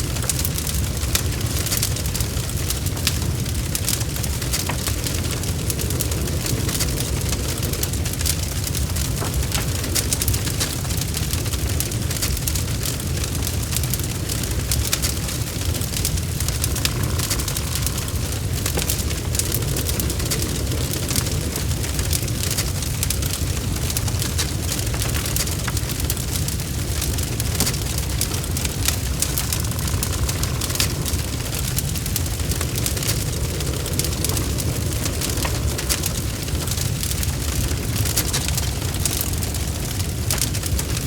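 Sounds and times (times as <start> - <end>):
wood fire crackling: 0.0 - 41.0
low rumble: 14.3 - 41.0.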